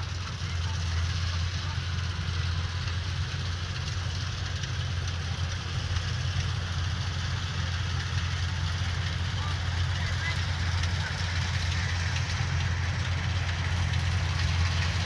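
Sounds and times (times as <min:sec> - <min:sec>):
diesel engine running: 0:00.0 - 0:15.0
machinery noise: 0:07.8 - 0:15.0.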